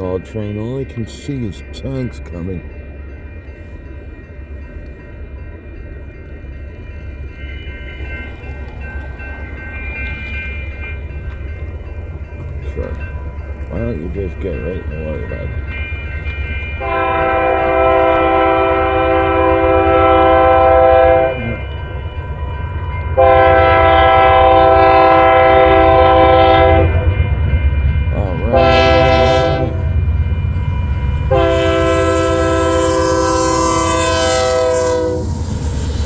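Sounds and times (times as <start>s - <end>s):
low rumble of train: 0.0s - 36.0s
locomotive air horn blasts: 16.8s - 21.6s, 23.2s - 27.0s, 28.5s - 29.8s, 31.3s - 35.4s.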